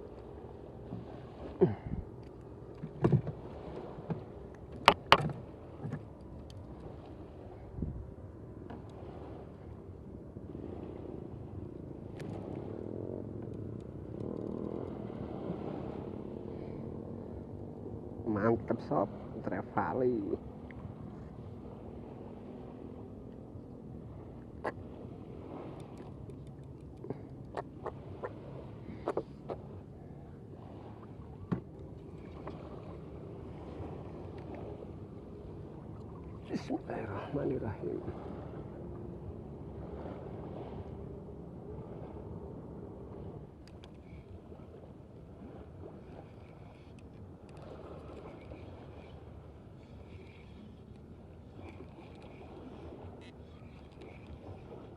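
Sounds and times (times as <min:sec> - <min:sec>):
water rumbling: 0:00.0 - 0:54.9
wind: 0:00.0 - 0:54.9
sharp clicks and knocks: 0:04.8 - 0:06.0.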